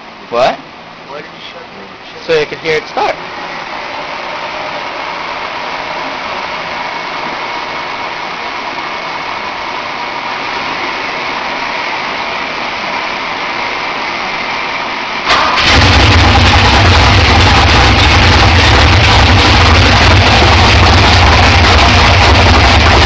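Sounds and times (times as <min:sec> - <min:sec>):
steady hiss: 0:00.0 - 0:15.8
car engine starting and running: 0:15.2 - 0:23.0.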